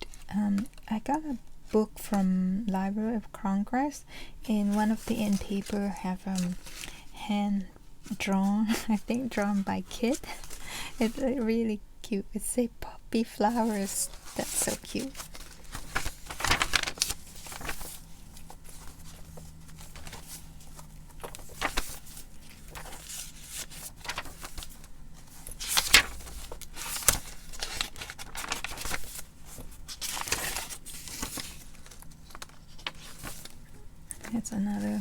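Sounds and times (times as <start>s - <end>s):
paper pages rustling and crinkling: 4.6s - 7.1s, 8.0s - 11.3s, 13.5s - 35.0s.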